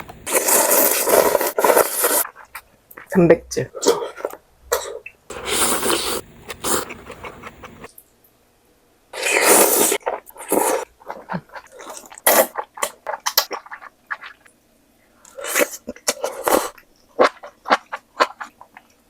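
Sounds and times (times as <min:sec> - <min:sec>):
slurping noodles: 0:00.3 - 0:02.3, 0:05.3 - 0:07.9, 0:09.2 - 0:14.4
chewing: 0:15.2 - 0:19.0.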